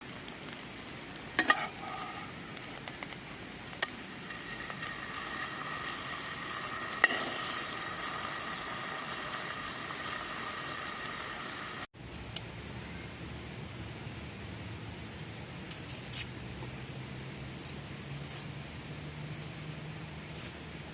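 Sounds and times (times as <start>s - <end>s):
food frying in a pan: 0.0s - 11.9s.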